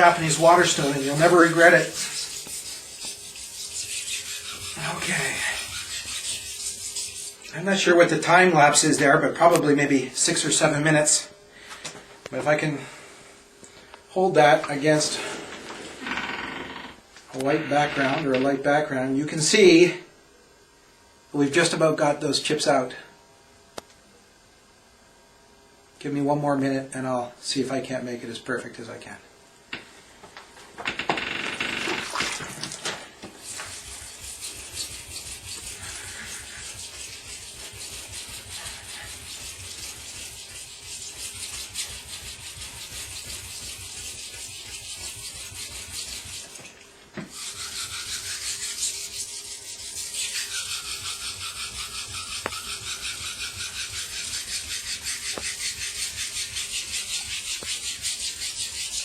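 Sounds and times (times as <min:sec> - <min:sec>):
knife grinding on whetstone: 0:00.0 - 0:07.9, 0:33.4 - 0:46.6, 0:47.3 - 0:59.0.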